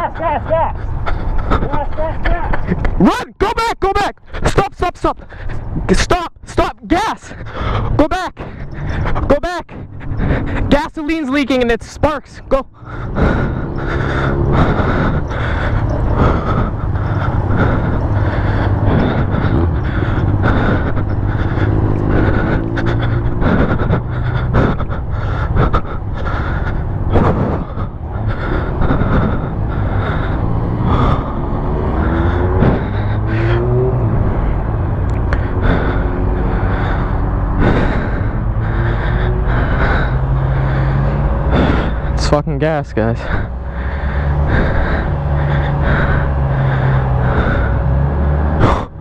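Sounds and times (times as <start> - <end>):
constant rushing noise: 0.0 - 49.0
motorcycle engine accelerating: 12.5 - 49.0.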